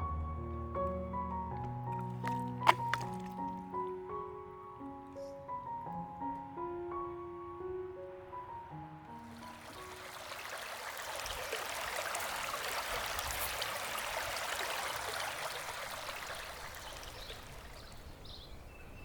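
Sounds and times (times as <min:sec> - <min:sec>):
stream running water: 0:01.5 - 0:03.9, 0:09.2 - 0:19.0
birds chirping: 0:13.8 - 0:19.0.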